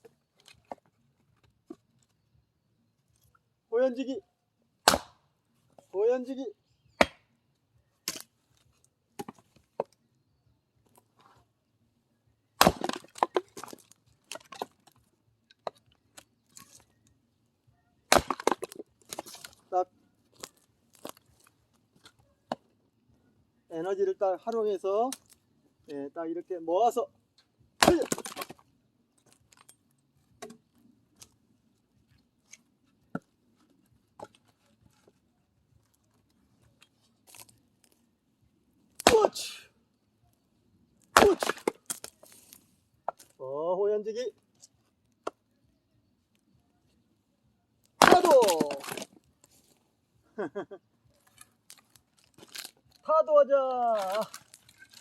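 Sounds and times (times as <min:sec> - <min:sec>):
axe striking wood: 0:04.8 - 0:05.2, 0:07.0 - 0:07.3, 0:08.0 - 0:08.3, 0:09.2 - 0:09.9, 0:12.6 - 0:14.8, 0:18.1 - 0:19.5, 0:27.8 - 0:28.6, 0:39.0 - 0:39.6, 0:41.1 - 0:42.1, 0:48.0 - 0:49.1
wood cracking: 0:04.8 - 0:05.2, 0:08.0 - 0:10.0, 0:12.6 - 0:17.0, 0:18.1 - 0:22.7, 0:24.5 - 0:25.5, 0:27.4 - 0:31.5, 0:32.1 - 0:35.2, 0:35.8 - 0:38.1, 0:38.8 - 0:39.6, 0:41.0 - 0:43.4, 0:47.8 - 0:49.8, 0:51.1 - 0:53.1, 0:53.9 - 0:55.0
split wood clattering: 0:08.0 - 0:08.4, 0:09.2 - 0:10.0, 0:12.6 - 0:16.8, 0:18.1 - 0:19.7, 0:27.8 - 0:28.6, 0:32.4 - 0:35.2, 0:36.8 - 0:38.0, 0:39.0 - 0:39.3, 0:41.0 - 0:43.4, 0:48.0 - 0:49.6, 0:51.2 - 0:53.0, 0:53.9 - 0:55.0.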